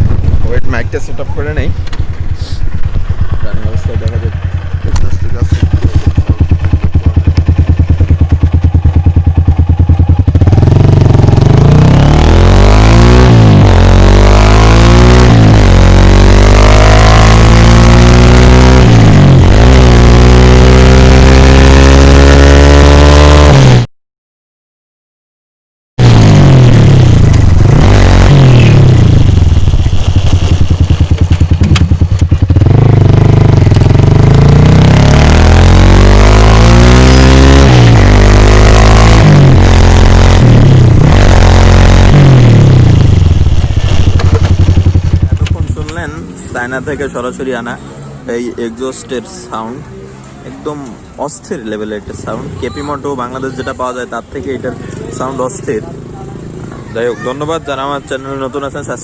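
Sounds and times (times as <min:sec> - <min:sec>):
motorcycle engine revving: 0:00.0 - 0:23.9, 0:26.0 - 0:47.6.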